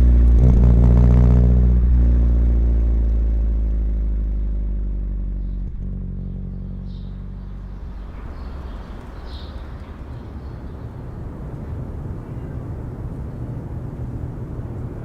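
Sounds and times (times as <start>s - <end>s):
car engine slowing: 0.0s - 15.0s
rough low engine rumble: 0.0s - 15.0s.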